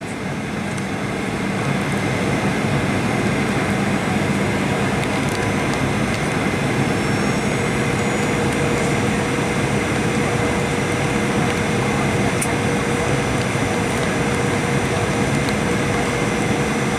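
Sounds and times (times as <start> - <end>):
aircraft cabin engine noise: 0.0 - 16.9
faint whining tones: 5.0 - 16.9.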